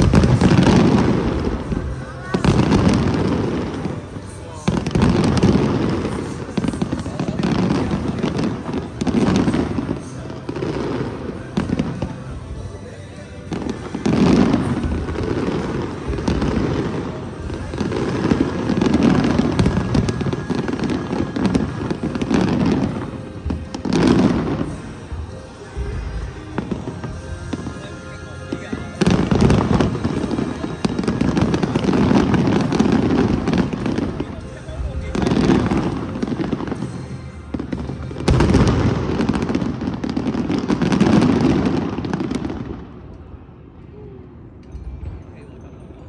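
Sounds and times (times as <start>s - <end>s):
fireworks booming and crackling: 0.0s - 43.4s.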